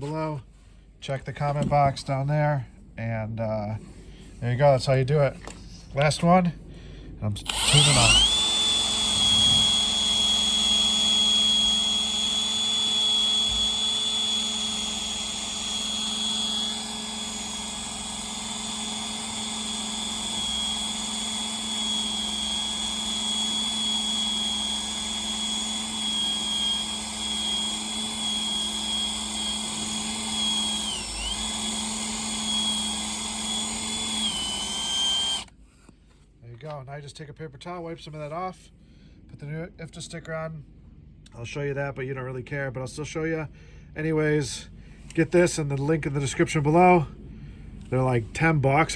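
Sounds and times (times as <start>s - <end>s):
power drill high whine: 7.4s - 35.5s.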